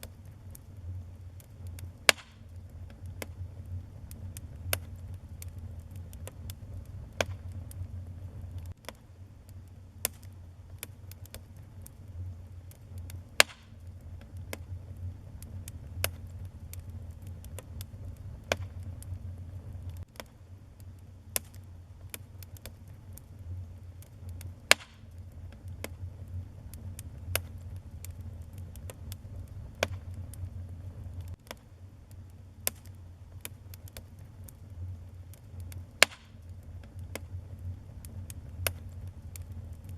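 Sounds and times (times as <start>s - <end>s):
fire crackling and popping: 0.0s - 39.9s
low rumble of flames: 0.0s - 39.9s
loud wood snaps: 2.1s - 3.4s, 13.0s - 13.8s, 18.5s - 18.7s, 24.7s - 25.0s, 35.7s - 36.4s.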